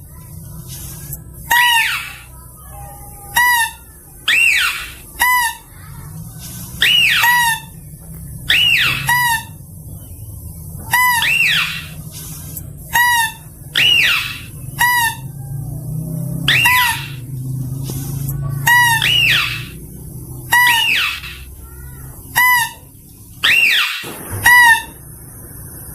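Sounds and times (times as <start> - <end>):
mouse-deer calls: 1.5 - 2.3, 3.3 - 5.8, 10.9 - 15.6, 16.3 - 17.4, 18.0 - 19.8.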